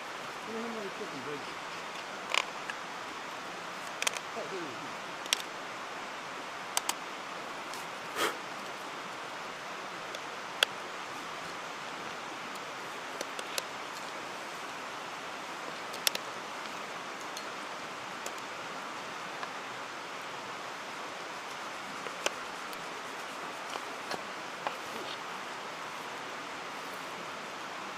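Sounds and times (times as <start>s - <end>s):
mountain stream rushing: 0.0s - 27.9s.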